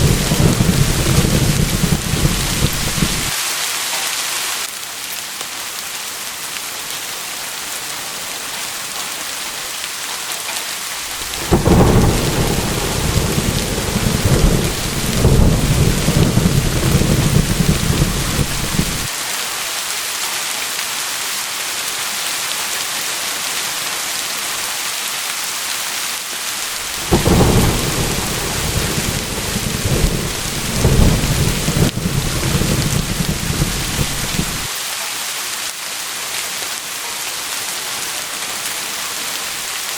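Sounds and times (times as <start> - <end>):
rolling thunder: 0.0 - 3.3, 11.0 - 19.1, 26.7 - 34.7
rain hissing: 0.0 - 4.7, 10.8 - 19.1, 26.4 - 34.9.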